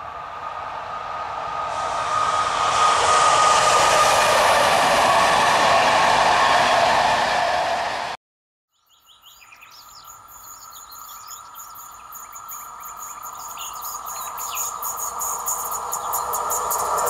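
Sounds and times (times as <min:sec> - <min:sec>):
electric train whine: 0:00.0 - 0:08.2, 0:10.3 - 0:17.0
small birds chirping: 0:08.7 - 0:17.0
quick ticking of train wheels: 0:13.3 - 0:17.0.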